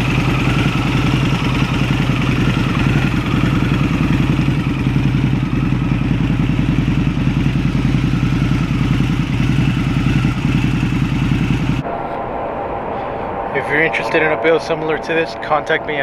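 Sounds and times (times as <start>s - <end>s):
motorcycle engine fast idle: 0.0s - 11.8s.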